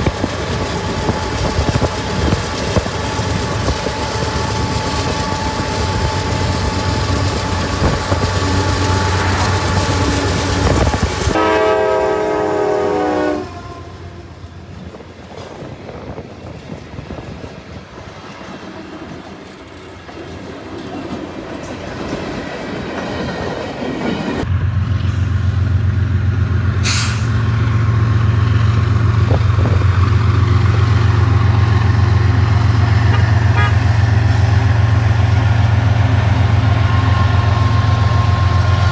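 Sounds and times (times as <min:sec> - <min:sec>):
locomotive engine droning: 0:00.0 - 0:15.6, 0:18.5 - 0:38.9
train passing: 0:00.0 - 0:38.9
locomotive horn chord: 0:07.8 - 0:14.4, 0:33.0 - 0:34.4.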